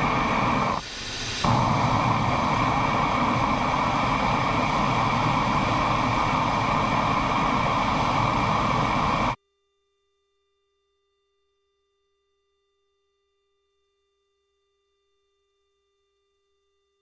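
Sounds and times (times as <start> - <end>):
jet aircraft roar: 0.0 - 9.4.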